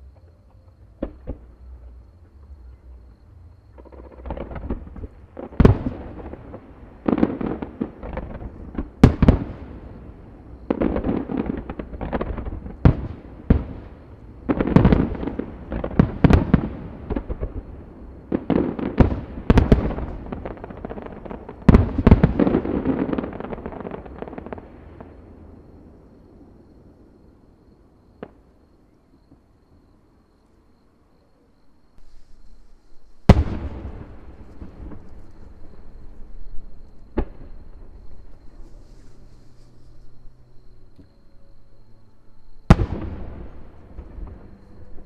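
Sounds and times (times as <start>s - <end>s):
fireworks bangs: 3.7s - 25.3s, 32.0s - 40.0s, 42.6s - 45.0s
fireworks crackling: 3.8s - 25.2s, 32.0s - 40.2s.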